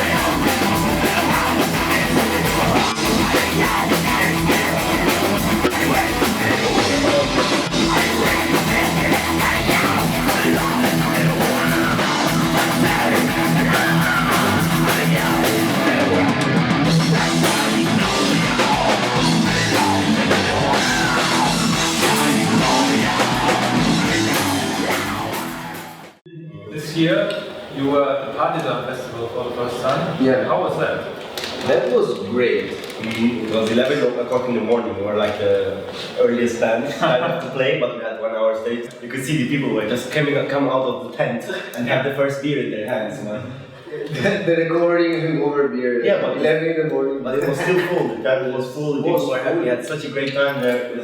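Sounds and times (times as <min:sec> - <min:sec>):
heavy metal band playing live: 0:00.0 - 0:26.2.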